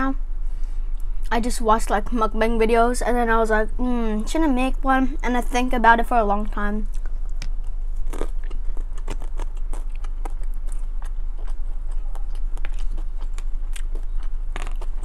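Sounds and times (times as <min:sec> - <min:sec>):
low hum: 0:00.0 - 0:15.0
wet chewing clicks and smacks: 0:06.9 - 0:15.0.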